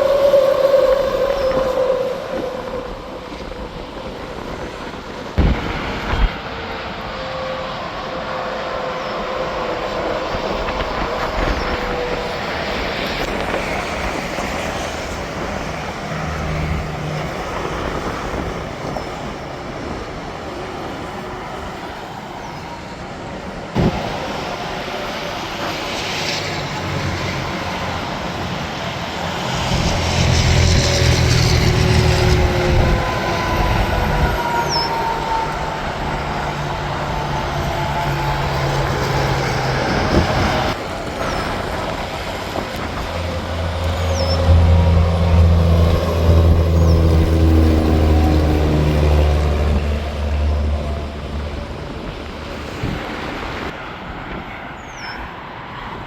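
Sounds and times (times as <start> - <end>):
highway traffic passing: 0.0 - 56.0
vehicle deep rumble: 27.3 - 53.0.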